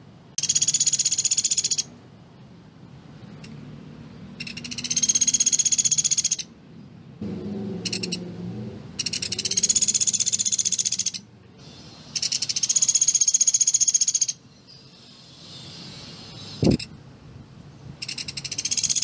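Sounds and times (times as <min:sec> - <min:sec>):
woodpecker rattling trills: 0:00.4 - 0:01.9, 0:04.4 - 0:06.5, 0:07.8 - 0:08.2, 0:09.0 - 0:11.3, 0:12.1 - 0:14.4, 0:18.0 - 0:19.0.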